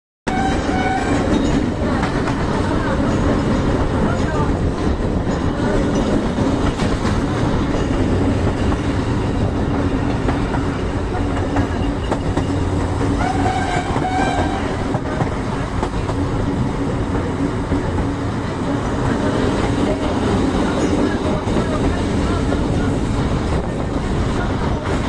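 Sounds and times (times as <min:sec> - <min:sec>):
train horn blasts: 0:00.3 - 0:01.5, 0:13.2 - 0:14.9
train wheels rumbling on rail: 0:00.3 - 0:25.0.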